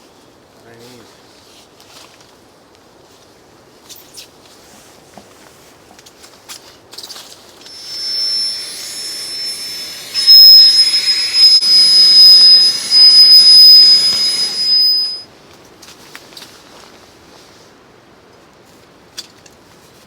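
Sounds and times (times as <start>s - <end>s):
small motor whining: 7.7s - 15.2s.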